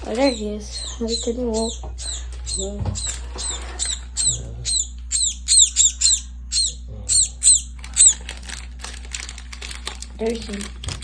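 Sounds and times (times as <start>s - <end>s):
sparrow chirping: 0.0s - 8.2s
low hum: 0.0s - 11.0s.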